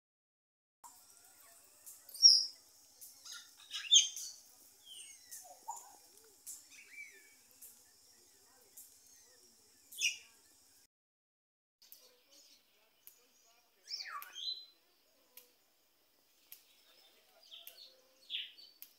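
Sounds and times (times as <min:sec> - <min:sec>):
small birds chirping: 0:00.8 - 0:10.9, 0:11.8 - 0:18.9
faint high hiss: 0:01.1 - 0:10.9.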